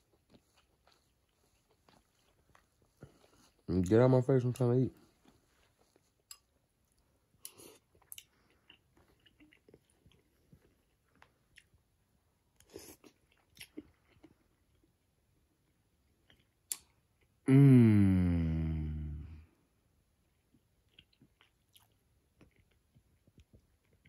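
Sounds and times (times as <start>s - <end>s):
person chewing: 0.0s - 3.8s, 5.0s - 11.9s, 12.5s - 15.0s, 15.6s - 19.4s, 20.3s - 24.0s
person humming: 17.5s - 19.4s.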